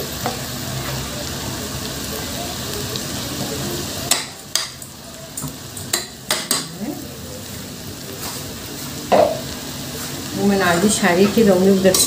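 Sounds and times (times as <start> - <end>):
food sizzling in a pot: 0.0 - 12.0
spoon knocking against pot: 9.1 - 9.4.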